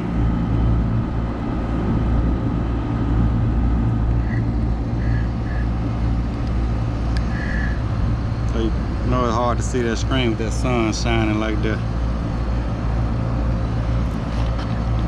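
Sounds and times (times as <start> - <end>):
air conditioner unit humming: 0.0 - 15.0.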